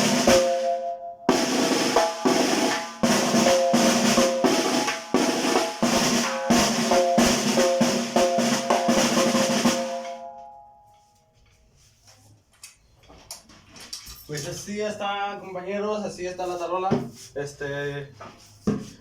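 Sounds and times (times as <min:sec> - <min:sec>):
snare drum rolls: 0:01.3 - 0:10.2.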